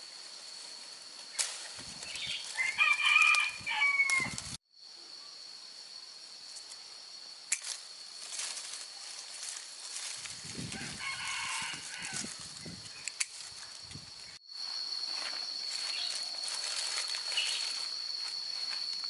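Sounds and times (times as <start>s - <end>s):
rooster crowing: 2.5s - 4.5s, 10.6s - 12.5s.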